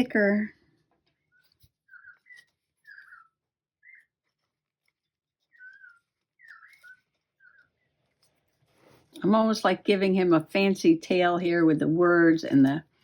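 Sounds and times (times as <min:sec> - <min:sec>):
soft whistling: 0:01.3 - 0:04.1, 0:05.4 - 0:07.7.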